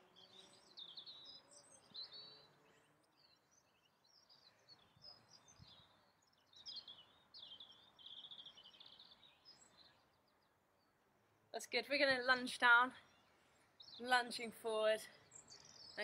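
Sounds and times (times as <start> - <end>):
faint birdsong: 0.0 - 16.0.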